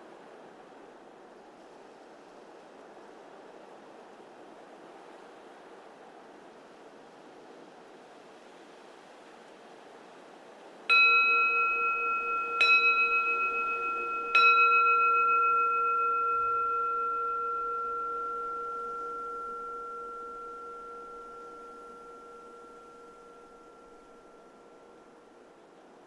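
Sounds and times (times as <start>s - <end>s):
faint wind: 0.0s - 26.0s
bowl bell ringing: 10.9s - 25.5s.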